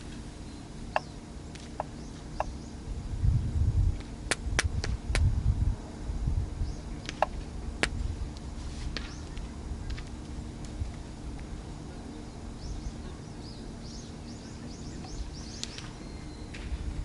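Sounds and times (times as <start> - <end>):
low uneven rumble: 0.0 - 17.0.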